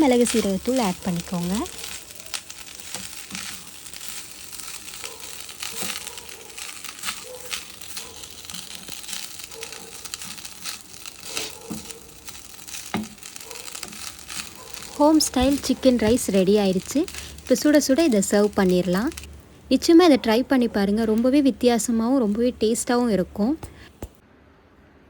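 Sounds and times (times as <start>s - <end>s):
spatula scraping hot pan: 0.0s - 19.8s
faint sizzle: 0.0s - 24.2s.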